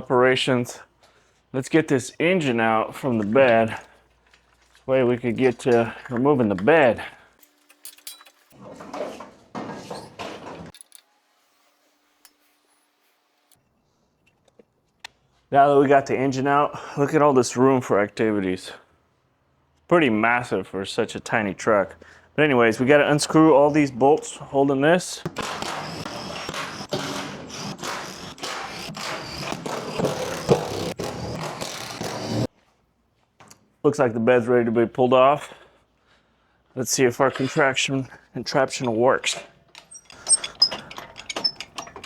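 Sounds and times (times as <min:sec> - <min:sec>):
metal tools clattering: 0:07.4 - 0:11.0, 0:38.7 - 0:42.0
power tool rattling: 0:39.8 - 0:42.0.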